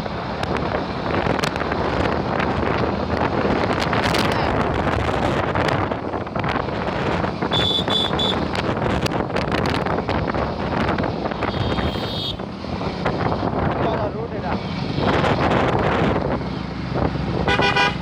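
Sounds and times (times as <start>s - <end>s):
traffic and road noise: 0.0s - 18.0s
wind buffeting microphone: 0.0s - 18.0s
short high beeps: 7.5s - 8.4s.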